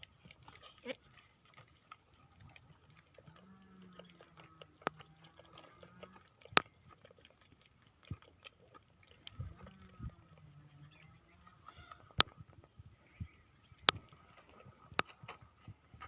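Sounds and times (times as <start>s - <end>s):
livestock chewing feed: 0.0s - 16.0s
low drawn-out animal call: 9.3s - 12.2s.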